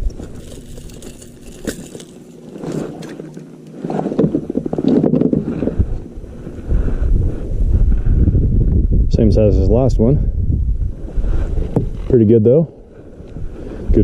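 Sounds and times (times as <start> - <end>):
crackling scrape: 0.0 - 7.4.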